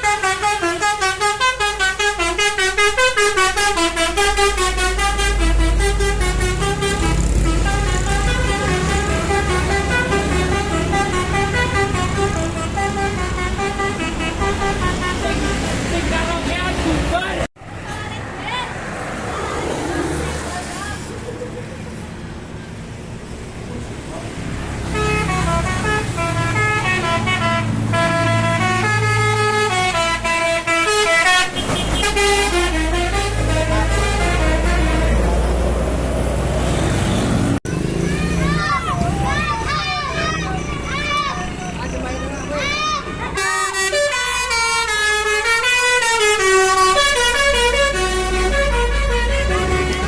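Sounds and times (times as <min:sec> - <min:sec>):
bus musical horn playing a tune: 0:00.0 - 0:16.0, 0:24.8 - 0:35.6, 0:39.7 - 0:50.0
bus engine rumbling: 0:00.0 - 0:50.0.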